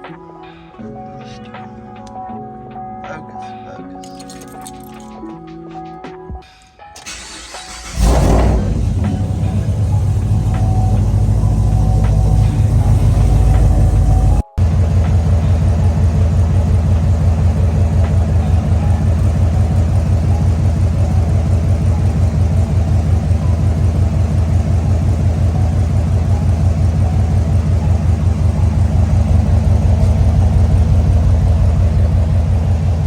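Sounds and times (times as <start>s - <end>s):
car engine idling: 7.0s - 33.0s.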